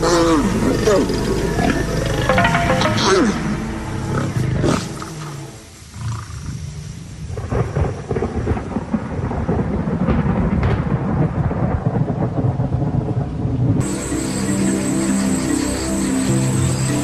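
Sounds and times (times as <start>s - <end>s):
rain: 0.0s - 17.0s
rolling thunder: 7.1s - 13.8s.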